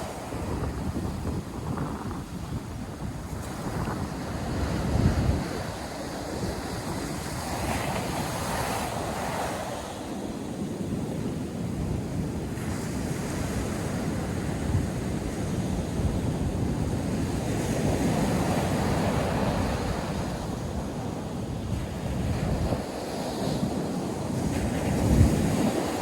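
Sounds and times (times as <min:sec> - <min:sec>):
wind buffeting microphone: 0:00.0 - 0:26.0
surf breaking on sandy beach: 0:15.8 - 0:26.0.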